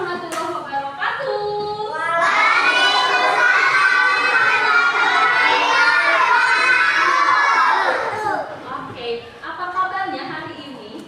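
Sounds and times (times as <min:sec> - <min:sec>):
children shouting together: 0:02.0 - 0:08.6.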